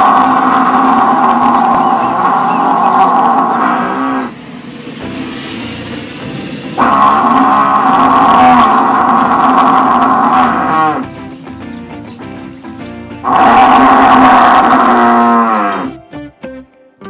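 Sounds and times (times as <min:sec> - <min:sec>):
cow mooing: 0:06.8 - 0:11.0, 0:13.2 - 0:16.0.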